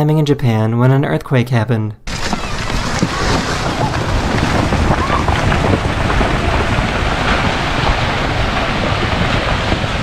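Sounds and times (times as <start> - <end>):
faint voices: 2.1 - 6.6
wind buffeting microphone: 2.1 - 10.0.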